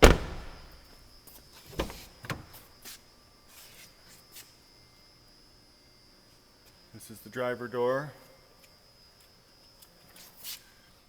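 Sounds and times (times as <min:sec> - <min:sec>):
car door knocks: 0:00.0 - 0:00.7.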